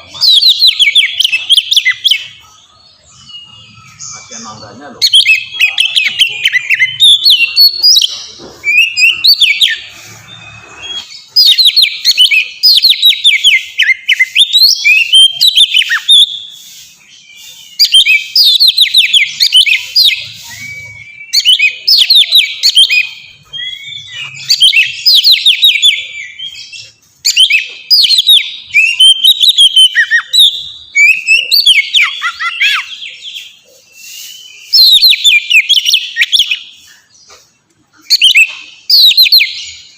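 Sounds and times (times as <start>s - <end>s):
bird singing whistled trills: 0.0s - 39.9s.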